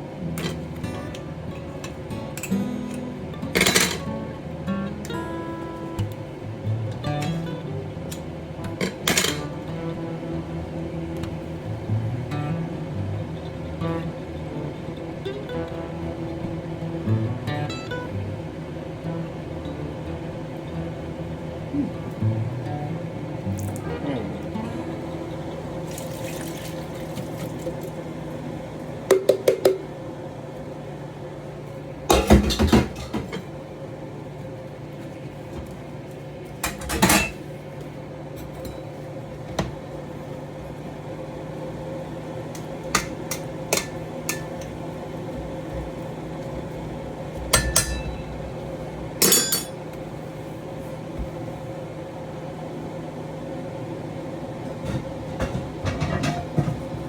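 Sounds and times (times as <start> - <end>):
steady low hum: 0.0 - 57.0
metal utensils clinking on pan: 47.6 - 48.2, 49.2 - 49.8.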